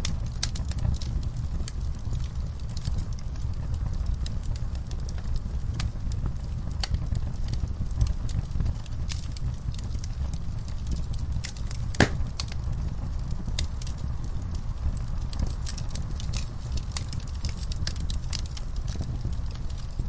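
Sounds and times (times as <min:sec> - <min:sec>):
fire crackling in a fireplace: 0:00.0 - 0:20.0
low rumble of flames: 0:00.0 - 0:20.0
loud fire pop: 0:11.9 - 0:12.5.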